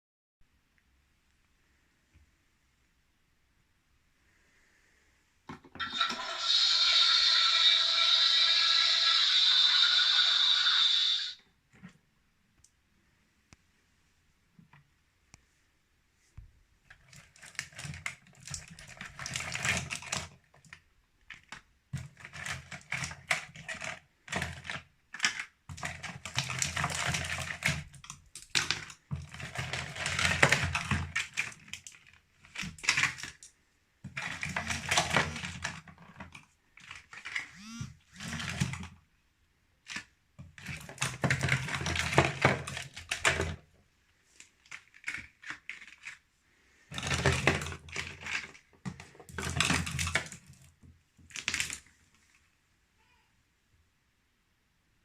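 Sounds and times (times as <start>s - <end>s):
candy clattering and rustling: 16.9s - 37.5s, 38.2s - 39.0s, 39.8s - 52.5s.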